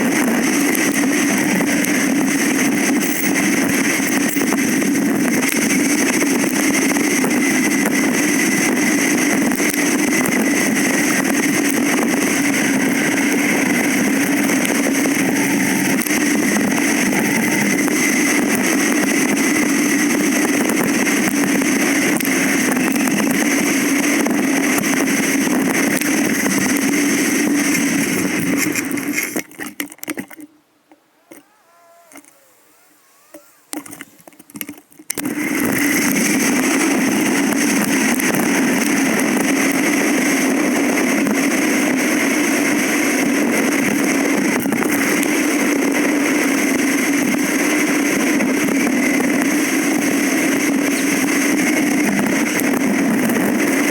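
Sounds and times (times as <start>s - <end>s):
bike ride running noise: 0.0s - 53.9s.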